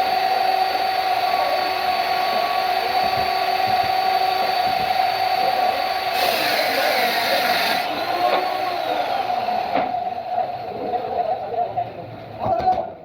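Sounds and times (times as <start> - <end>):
power tool motor whining: 0.0 - 11.1
loud hiss: 2.2 - 10.4.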